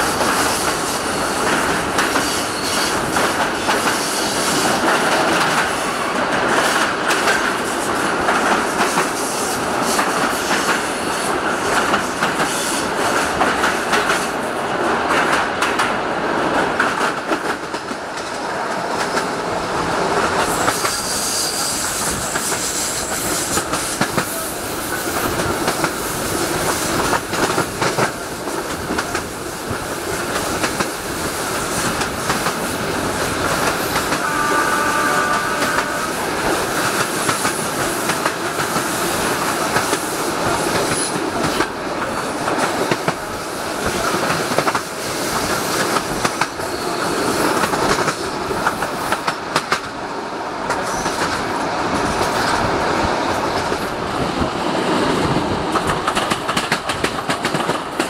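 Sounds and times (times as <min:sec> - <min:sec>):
train wheels clicking over rail joints: 0:00.0 - 0:58.0
train wheel squeal: 0:02.0 - 0:04.8, 0:20.4 - 0:25.2, 0:33.6 - 0:36.3, 0:45.6 - 0:48.4.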